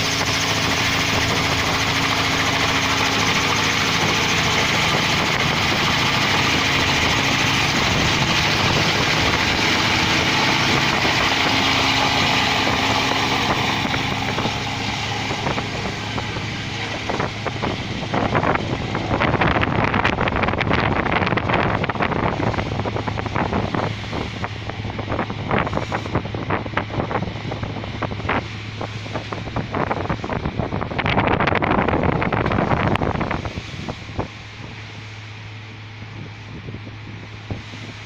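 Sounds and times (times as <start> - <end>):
helicopter rotor and turbine: 0.0 - 38.0
ship engine low hum: 0.0 - 38.0
wind buffeting microphone: 0.0 - 38.0.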